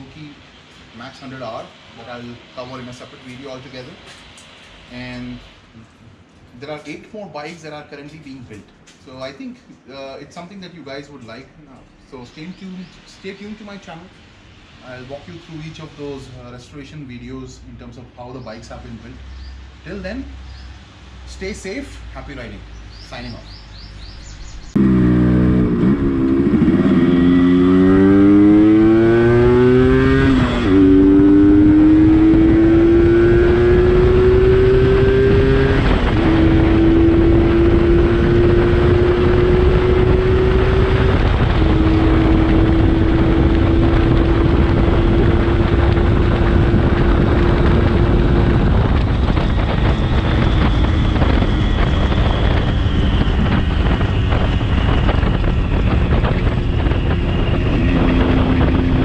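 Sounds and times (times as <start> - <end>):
motorcycle accelerating through gears: 24.4 - 59.0.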